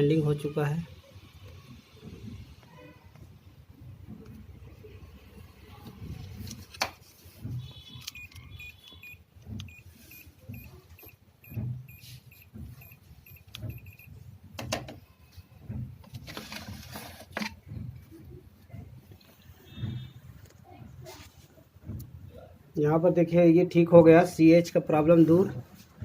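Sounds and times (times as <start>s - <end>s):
short electronic beeps: 7.6s - 14.1s.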